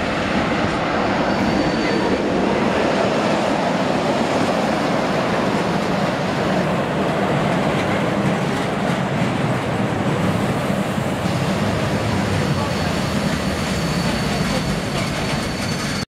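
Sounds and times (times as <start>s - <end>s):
freight train wheels rumbling: 0.0s - 16.0s.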